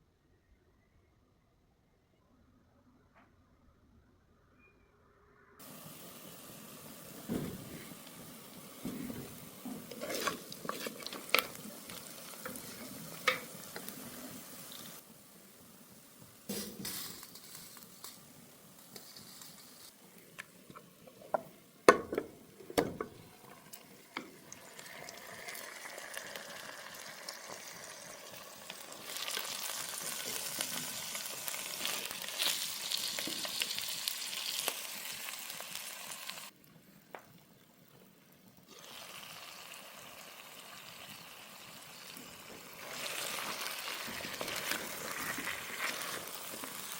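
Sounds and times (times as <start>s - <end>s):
food sizzling in a pot: 5.6s - 46.9s
utensil knocking against pot: 21.3s - 23.2s.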